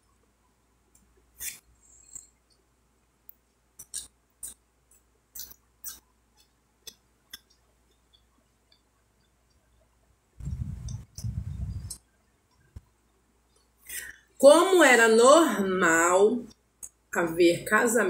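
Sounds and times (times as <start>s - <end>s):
wet eating smacks and clicks: 3.3s - 8.3s.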